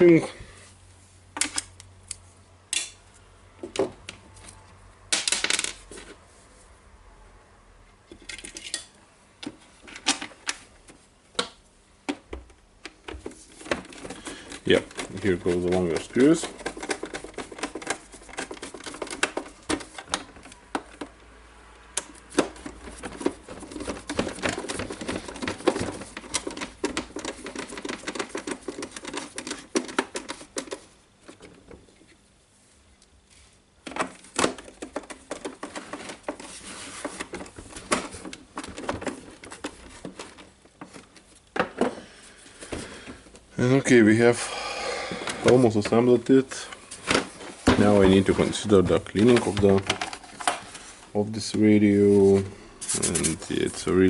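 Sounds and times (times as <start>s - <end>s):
plastic parts rattling: 12.9s - 21.2s, 22.3s - 31.6s, 33.8s - 42.0s, 47.0s - 50.9s.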